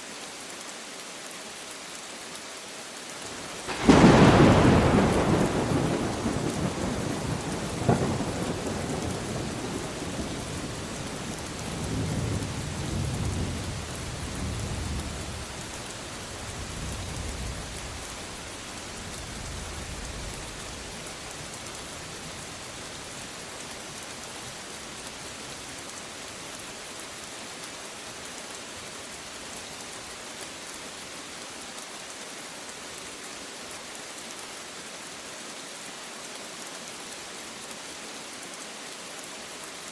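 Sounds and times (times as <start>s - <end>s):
steady rain: 0.0s - 39.9s
thunder crack and rumbles: 3.7s - 18.2s.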